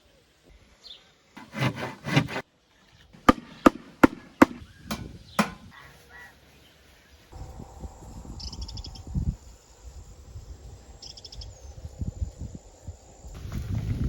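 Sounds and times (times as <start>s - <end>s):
rough scraping: 1.4s - 2.4s
sharp knocks on wood: 3.3s - 5.7s.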